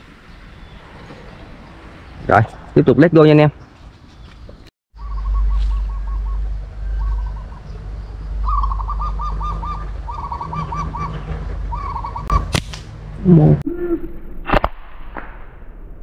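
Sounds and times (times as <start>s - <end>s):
bird calling repeated notes: 5.0s - 7.7s, 8.4s - 12.4s
low rumble: 5.0s - 16.0s
sharp snap: 12.3s - 12.9s, 14.4s - 15.6s.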